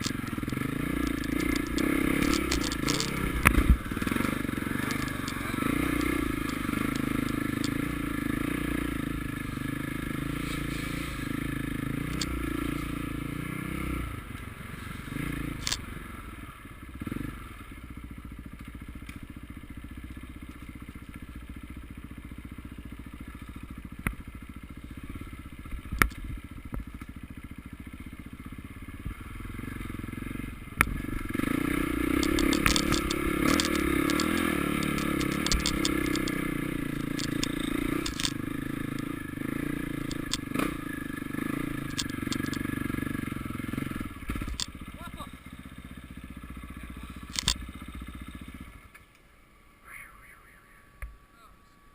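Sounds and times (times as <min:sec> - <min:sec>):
sharp clicks and knocks: 0:00.0 - 0:07.9, 0:12.0 - 0:12.4, 0:32.0 - 0:40.9, 0:41.6 - 0:42.7, 0:44.3 - 0:44.8, 0:47.3 - 0:47.6
motorcycle engines running: 0:00.0 - 0:51.9.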